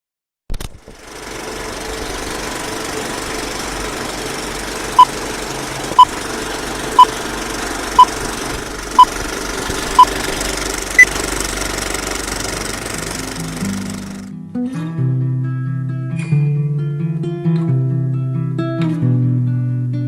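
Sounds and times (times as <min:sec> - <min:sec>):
steady mechanical hum: 0:00.8 - 0:14.3.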